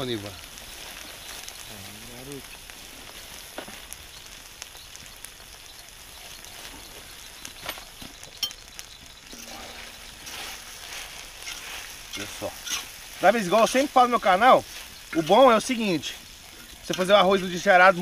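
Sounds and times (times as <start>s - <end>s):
food sizzling in hot oil: 0.0s - 18.0s
utensil stirring in pan: 8.1s - 18.0s.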